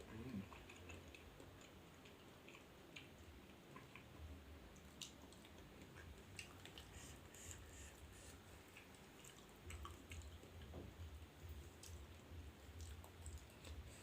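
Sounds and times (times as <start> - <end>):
wet chewing and mouth clicks: 0.0 - 14.0.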